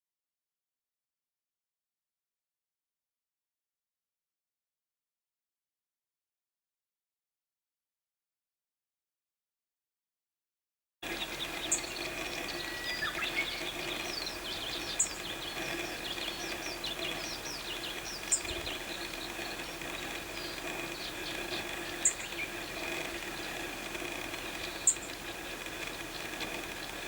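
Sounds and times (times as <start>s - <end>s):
birds chirping: 11.0s - 27.0s
insect drone: 11.0s - 27.0s
sharp very high bird call: 11.4s - 19.0s.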